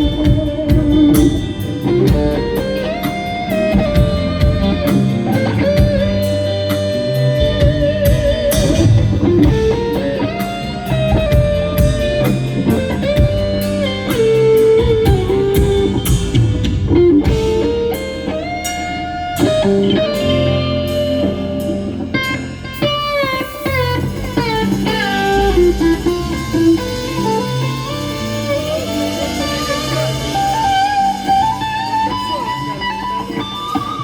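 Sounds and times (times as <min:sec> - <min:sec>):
lead electric guitar melody: 0:00.0 - 0:34.0
rock band playing ballad: 0:00.0 - 0:34.0
cymbal hits: 0:08.1 - 0:32.8.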